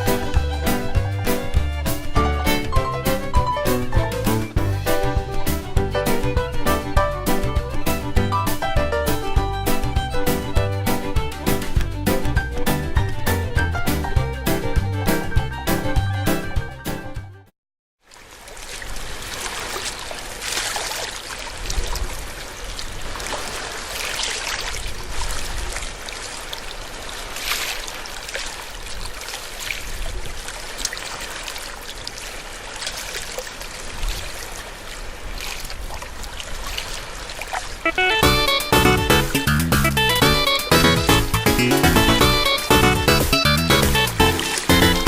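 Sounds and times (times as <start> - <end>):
seawater lapping and splashing: 0.0 - 15.9, 18.0 - 45.0
wind rumble on microphone: 21.6 - 23.3, 24.6 - 26.1.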